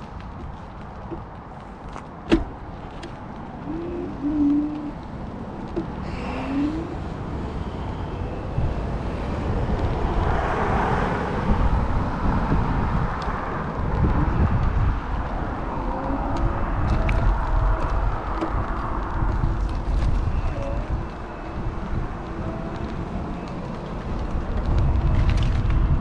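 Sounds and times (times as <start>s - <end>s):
wind buffeting microphone: 0.0s - 26.0s
motor vehicle passing: 2.9s - 26.0s
bird cooing: 3.6s - 5.0s.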